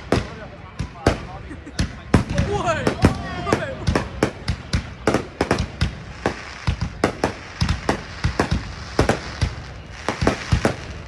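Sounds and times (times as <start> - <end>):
fireworks bursting with sharp bangs: 0.0 - 11.0.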